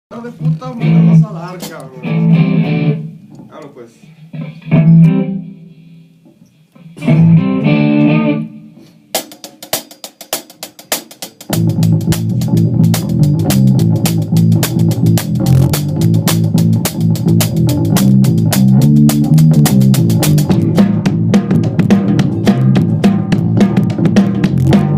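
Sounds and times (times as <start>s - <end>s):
full rock band playing: 0.8s - 3.2s, 7.0s - 8.6s, 11.3s - 24.9s
ringing guitar chords: 2.0s - 3.2s, 4.4s - 5.7s, 7.0s - 8.7s
drum beat with cymbal ticks: 9.1s - 24.9s.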